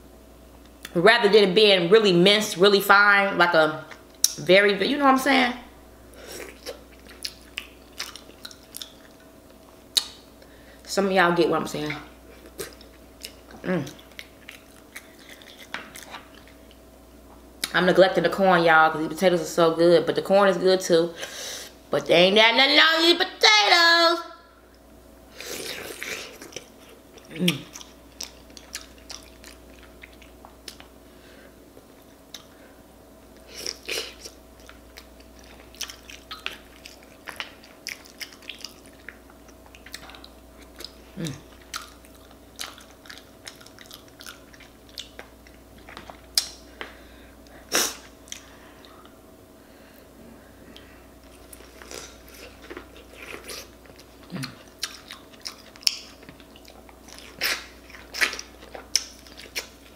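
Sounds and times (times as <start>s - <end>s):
person chewing with wet smacks: 6.4s - 10.2s, 12.3s - 16.8s, 25.6s - 31.0s, 31.8s - 32.6s, 33.4s - 47.0s, 47.8s - 49.2s, 50.7s - 59.9s.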